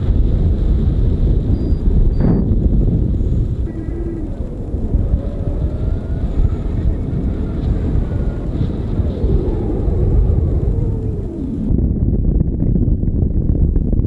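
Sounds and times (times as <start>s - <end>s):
wind rushing over microphone: 0.0s - 14.0s
faint wavering tones: 1.5s - 11.8s.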